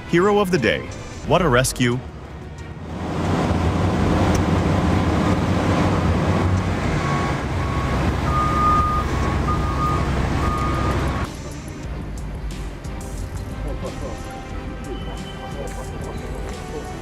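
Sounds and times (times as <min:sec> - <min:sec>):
heavy diesel engine under load: 0:02.2 - 0:11.3
backup alarm beeping: 0:06.9 - 0:11.3.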